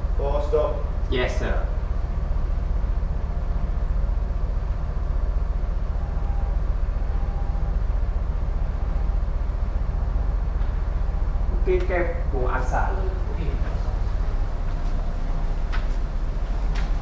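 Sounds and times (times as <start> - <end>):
ship engine low rumble: 0.0 - 17.0.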